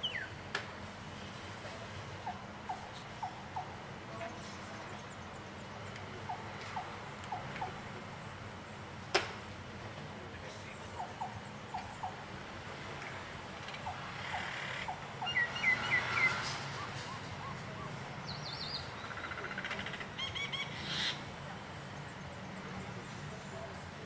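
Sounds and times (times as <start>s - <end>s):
bird trill: 0.0s - 0.4s, 13.8s - 21.2s
birds chirping: 0.0s - 1.0s, 2.0s - 9.6s, 10.2s - 24.0s.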